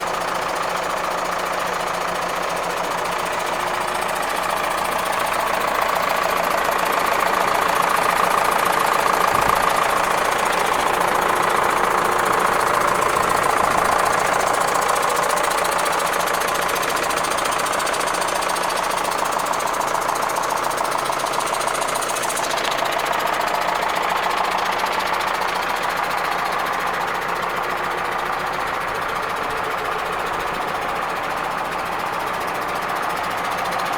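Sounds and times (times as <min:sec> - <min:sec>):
tractor diesel engine idling: 0:00.0 - 0:33.9.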